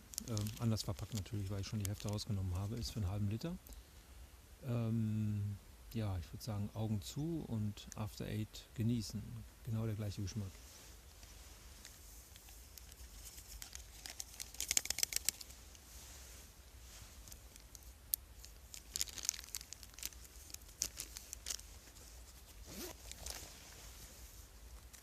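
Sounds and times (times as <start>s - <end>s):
food packaging crinkling and tearing: 0.0s - 2.3s, 11.8s - 15.6s, 17.1s - 23.6s.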